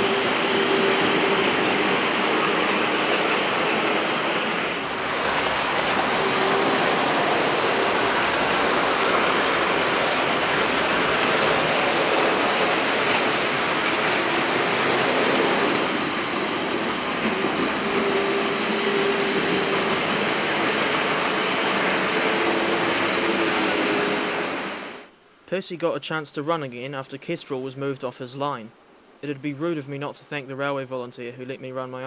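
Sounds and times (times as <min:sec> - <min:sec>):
faint hum: 0:00.0 - 0:32.0.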